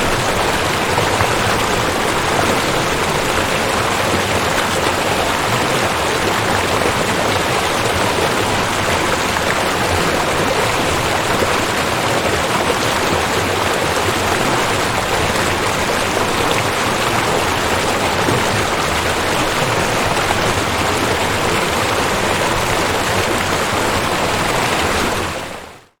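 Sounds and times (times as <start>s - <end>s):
river water rushing: 0.0s - 25.8s.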